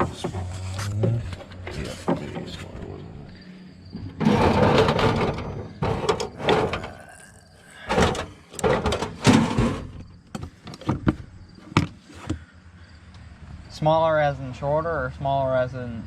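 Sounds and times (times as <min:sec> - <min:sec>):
hand tools clattering and scraping: 0:00.0 - 0:12.4.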